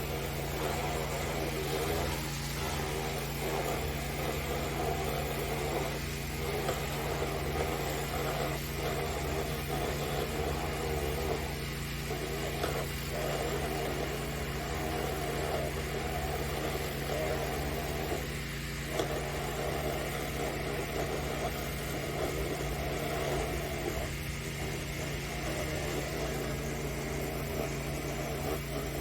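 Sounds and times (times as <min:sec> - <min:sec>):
pressure washer engine running: 0:00.0 - 0:29.0
water spray blasting: 0:00.0 - 0:29.0.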